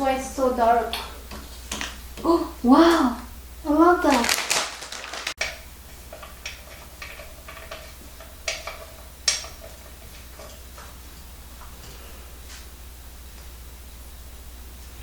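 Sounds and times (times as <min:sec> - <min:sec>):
small hard objects clicking: 0:04.1 - 0:05.5.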